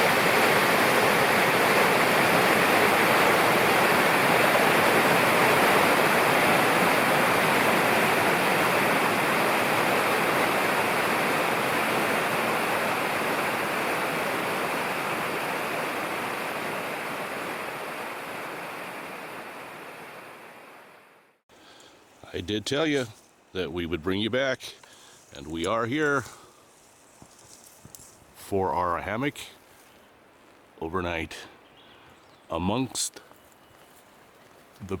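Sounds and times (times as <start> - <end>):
mountain river rushing: 0.0 - 21.4.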